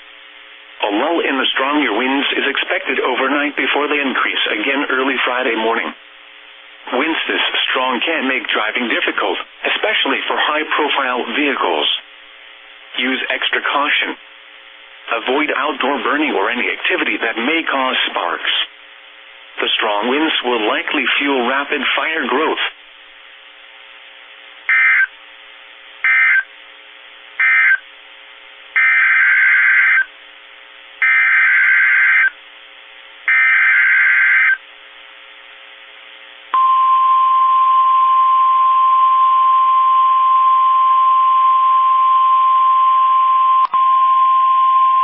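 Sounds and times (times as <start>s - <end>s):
faint radio hiss: 0.0s - 36.6s
steady warning alarm tone: 24.7s - 25.1s, 26.0s - 26.5s, 27.4s - 27.8s, 28.8s - 30.1s, 31.0s - 32.4s, 33.3s - 34.6s.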